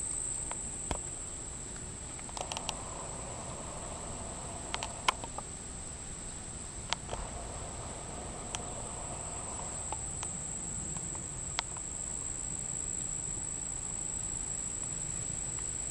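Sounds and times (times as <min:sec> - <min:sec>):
sharp clicks: 0:02.2 - 0:05.4, 0:06.9 - 0:10.4
insect high-pitched drone: 0:02.2 - 0:15.9.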